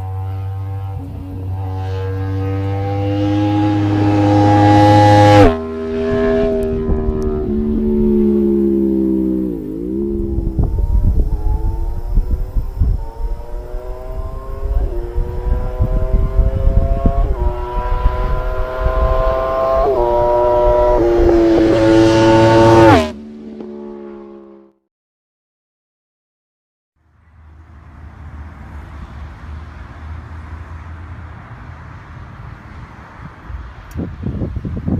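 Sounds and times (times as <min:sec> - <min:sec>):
motorcycle engine revving: 0:00.0 - 0:24.8.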